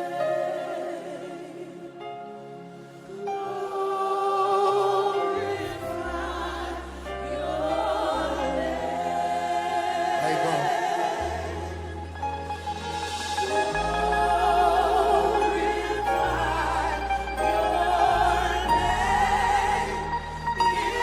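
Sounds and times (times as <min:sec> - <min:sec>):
gospel worship music: 0:00.0 - 0:21.0
voices singing with vibrato: 0:00.0 - 0:21.0
deep bass: 0:11.2 - 0:21.0.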